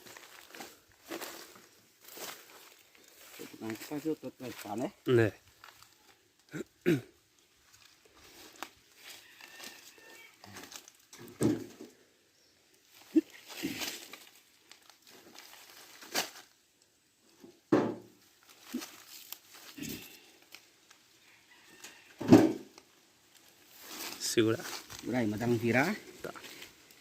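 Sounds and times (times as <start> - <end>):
firewood knocking and clattering: 11.1 - 11.9, 17.4 - 18.2, 22.2 - 22.8.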